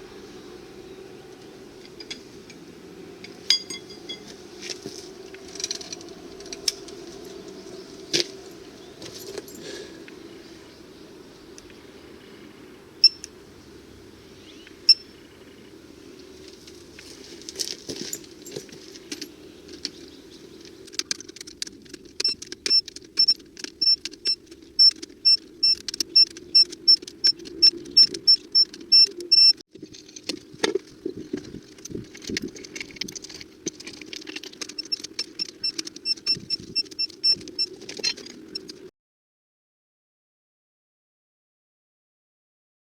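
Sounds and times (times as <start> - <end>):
electronic beeps: 13.0 - 13.2, 22.2 - 29.6
rapid high beeping: 22.2 - 29.6.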